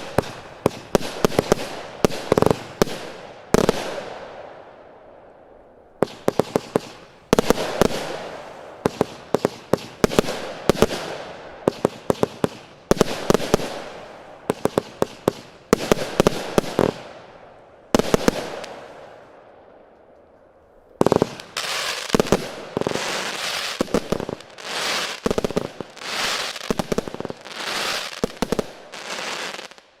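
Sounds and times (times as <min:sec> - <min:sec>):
fireworks bangs and crackle: 0:00.0 - 0:04.9, 0:06.0 - 0:30.0.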